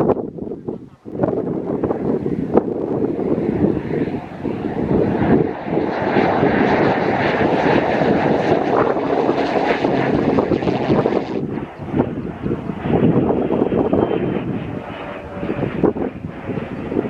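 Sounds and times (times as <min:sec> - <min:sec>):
jet engine rushing: 0:00.0 - 0:17.0
wind buffeting microphone: 0:00.0 - 0:17.0.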